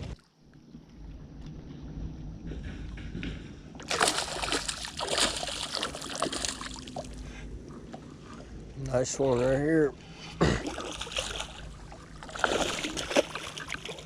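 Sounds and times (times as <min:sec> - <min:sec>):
fish splashing in water: 0:03.8 - 0:07.2, 0:10.5 - 0:14.0.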